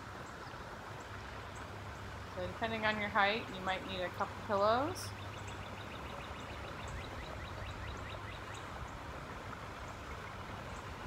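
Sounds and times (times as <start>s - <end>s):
bird chirping: 5.0s - 8.8s.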